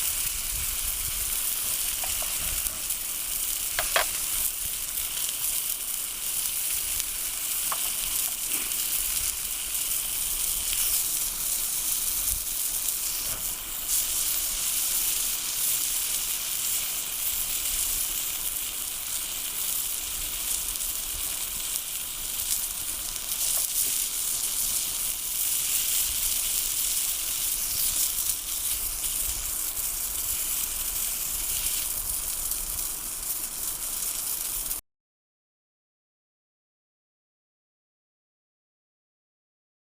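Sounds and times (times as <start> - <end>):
food sizzling in pan: 0.0 - 34.8
small pops: 1.9 - 2.9, 3.7 - 4.4, 7.6 - 8.9.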